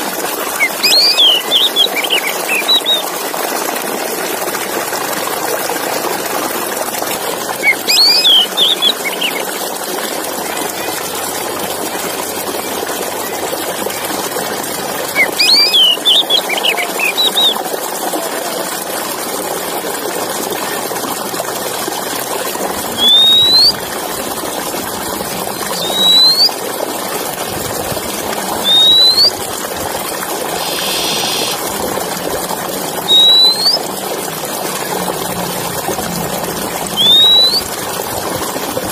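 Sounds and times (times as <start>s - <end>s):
bird warbling and whistling: 0.6s - 3.1s, 7.6s - 9.4s, 15.1s - 17.6s, 22.9s - 23.8s, 25.6s - 26.6s, 28.6s - 29.4s, 30.5s - 31.6s, 33.0s - 33.8s, 36.9s - 37.7s.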